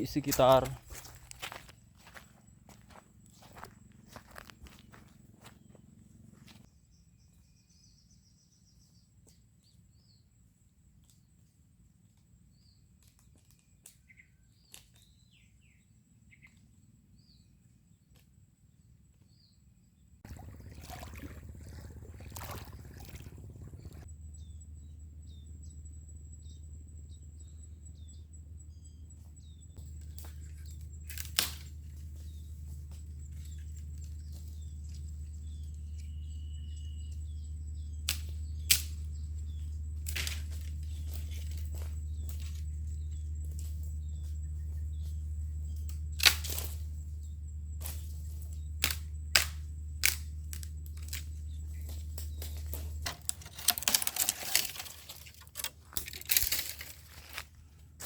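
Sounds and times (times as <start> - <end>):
birds chirping: 0.0 - 9.0, 20.2 - 57.7
steady low rumble: 20.3 - 53.3.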